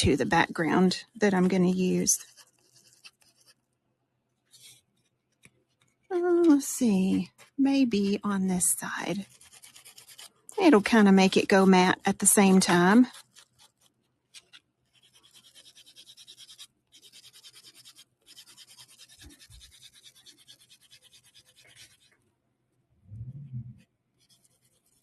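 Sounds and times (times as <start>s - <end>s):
nail buffer rasping on fingernail: 9.1s - 22.2s
low muffled bump: 23.1s - 23.8s.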